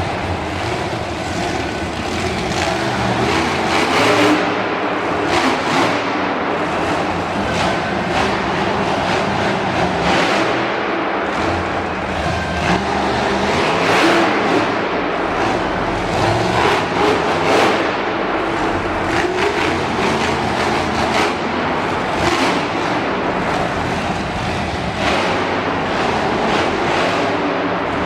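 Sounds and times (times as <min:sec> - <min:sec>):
monster truck engine revving: 0:00.0 - 0:28.0
steady wash of noise: 0:00.0 - 0:28.0.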